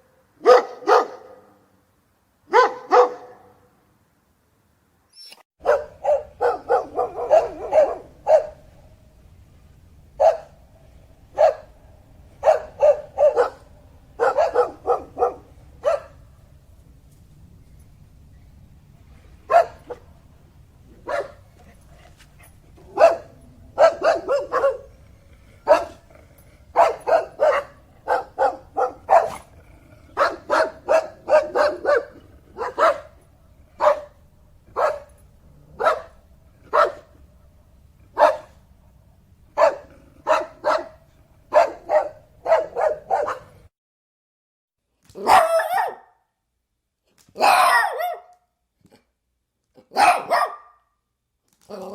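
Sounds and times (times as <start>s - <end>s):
dog barking: 0.4s - 1.6s, 2.5s - 3.7s, 5.6s - 8.6s, 10.2s - 10.6s, 11.3s - 11.8s, 12.4s - 16.2s, 19.5s - 20.1s, 21.0s - 21.5s, 22.9s - 24.9s, 25.6s - 26.0s, 26.7s - 29.5s, 30.2s - 33.2s, 33.8s - 37.1s, 38.1s - 38.6s, 39.6s - 43.6s, 45.2s - 46.2s, 47.4s - 48.4s, 49.8s - 50.9s.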